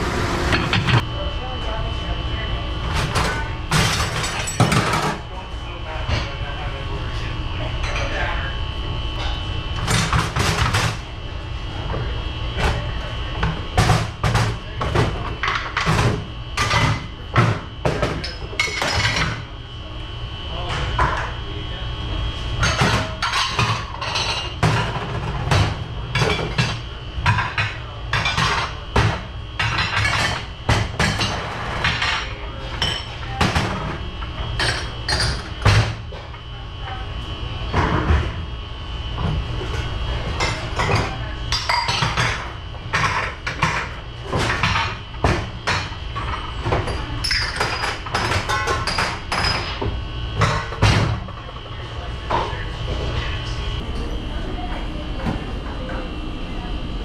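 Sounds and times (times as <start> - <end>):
steady hum: 0.0 - 1.4
dishes and silverware clattering: 22.6 - 33.9, 40.4 - 49.8.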